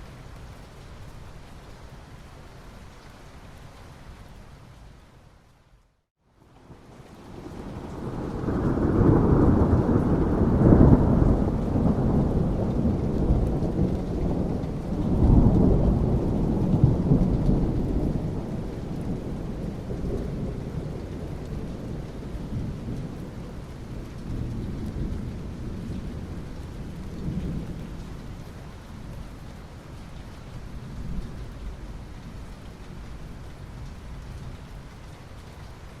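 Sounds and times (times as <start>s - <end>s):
steady rain: 0.0s - 36.0s
rolling thunder: 7.3s - 28.1s.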